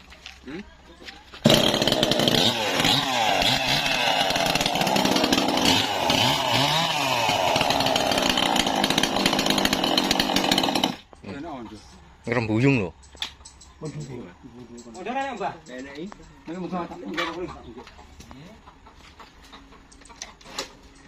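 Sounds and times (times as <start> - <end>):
engine-driven saw cutting wood: 1.4 - 11.0.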